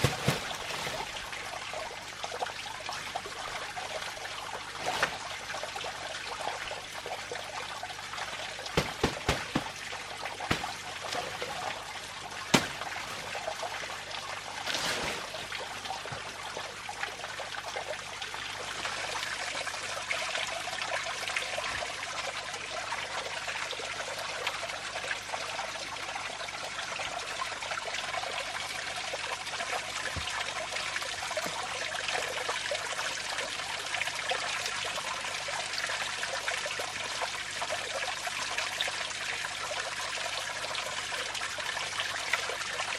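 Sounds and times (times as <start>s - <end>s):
water trickling: 0.0s - 42.9s
sharp knocks: 8.8s - 9.9s, 10.5s - 11.7s, 12.5s - 13.4s.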